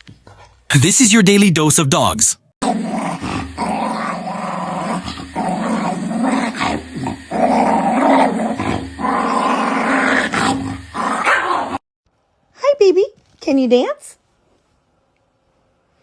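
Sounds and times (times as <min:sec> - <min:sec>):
dog growling: 0:02.6 - 0:11.8.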